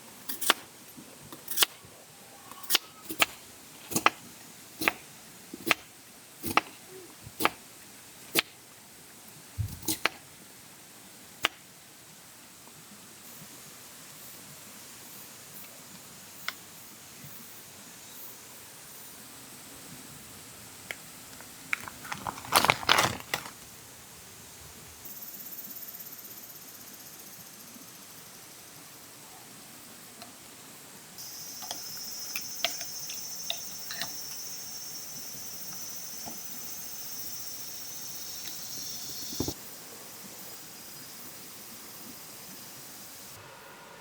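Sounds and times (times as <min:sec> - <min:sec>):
constant hiss: 0:00.0 - 0:44.0
crisp crinkling and rustling: 0:21.3 - 0:23.8
insects trilling: 0:25.0 - 0:28.5, 0:31.2 - 0:43.4.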